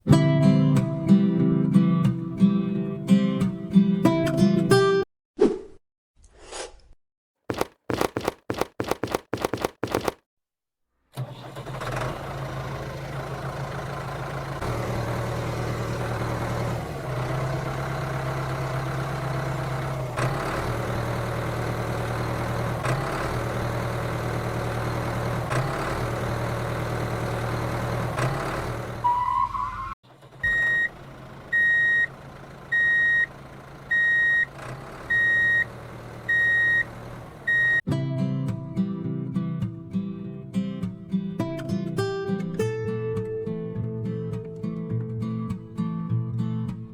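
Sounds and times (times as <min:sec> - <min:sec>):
guitar music: 0:00.1 - 0:05.0, 0:37.9 - 0:46.9
tractor engine running: 0:07.5 - 0:10.2, 0:12.2 - 0:29.0, 0:30.1 - 0:37.8.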